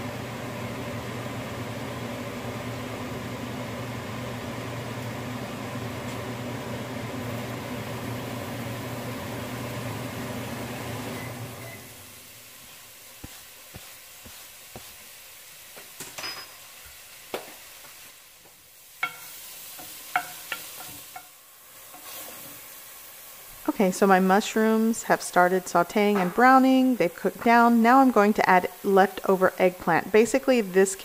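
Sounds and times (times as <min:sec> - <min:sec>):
mushrooms sizzling in oil: 0:00.0 - 0:31.0
wooden spoon knocking against pot: 0:20.1 - 0:21.3.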